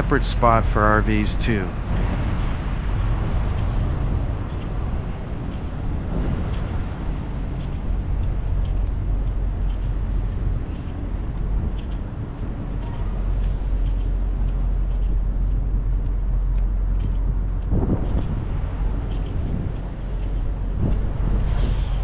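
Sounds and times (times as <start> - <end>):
vehicle engines rumbling: 0.0 - 22.0
faint ticks: 7.6 - 18.3.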